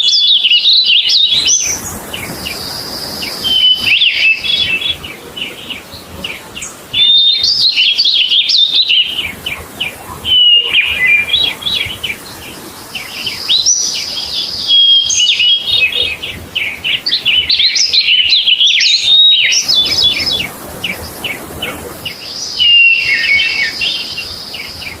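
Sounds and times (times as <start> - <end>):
bird singing chirps and trills: 0.0 - 25.0.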